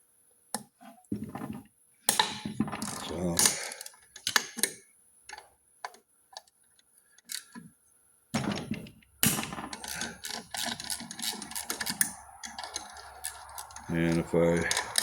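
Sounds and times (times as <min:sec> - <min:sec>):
socket ratchet clicking: 0:09.3 - 0:15.0.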